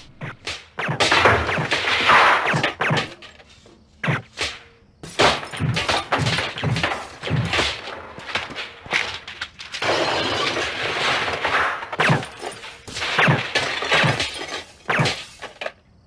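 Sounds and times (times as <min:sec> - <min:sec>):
thuds and smacks: 0:00.2 - 0:03.2, 0:04.0 - 0:09.4
glass shattering: 0:00.8 - 0:03.4, 0:05.0 - 0:15.8.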